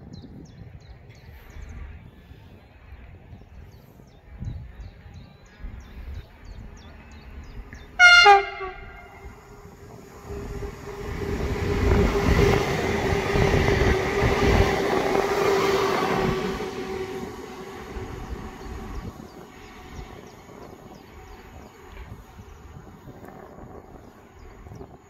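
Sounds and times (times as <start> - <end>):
steady train whine: 6.3 - 24.8
train wheels rumbling on rails: 6.6 - 24.9
train horn blast: 8.0 - 9.6.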